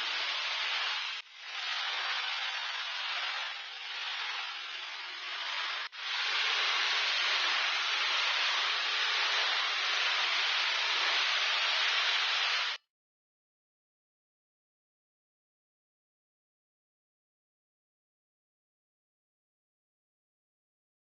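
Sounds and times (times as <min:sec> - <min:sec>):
steady rushing hiss: 0:00.0 - 0:12.8.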